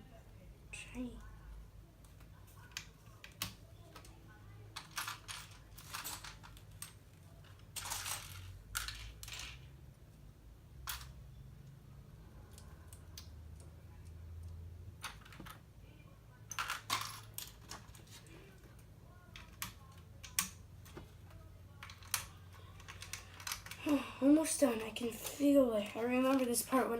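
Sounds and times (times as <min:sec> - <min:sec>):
low steady hum: 0:00.0 - 0:26.9
plastic pieces clicking and rattling: 0:04.7 - 0:09.7, 0:16.5 - 0:18.3, 0:19.3 - 0:23.8.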